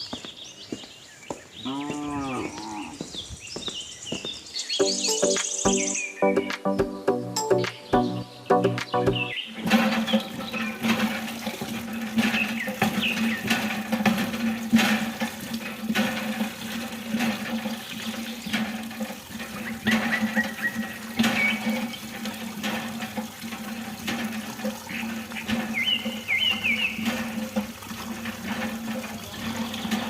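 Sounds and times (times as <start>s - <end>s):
water running and splashing: 8.6s - 30.0s.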